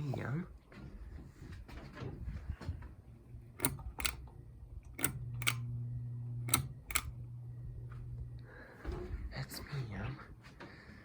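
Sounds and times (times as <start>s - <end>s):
fan motor low hum: 0.0s - 11.0s
pull-chain switch clicking: 3.6s - 5.7s, 6.5s - 7.2s.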